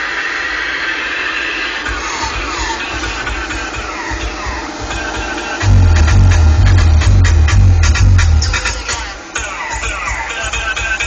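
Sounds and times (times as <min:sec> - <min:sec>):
heavy deep bass beat: 0:05.6 - 0:08.9
electronic dance music: 0:05.6 - 0:09.0.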